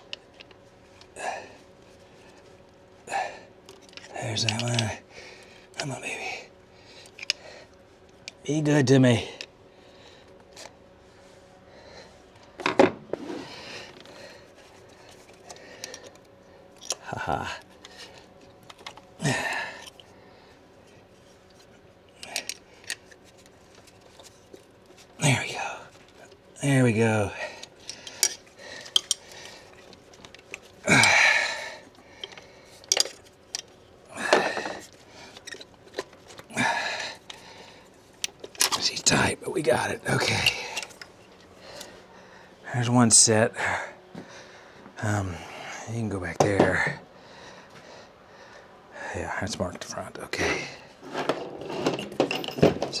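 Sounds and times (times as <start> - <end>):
man grunting with effort: 19.2 - 19.8, 30.8 - 31.7
hand tools clicking: 27.6 - 31.4.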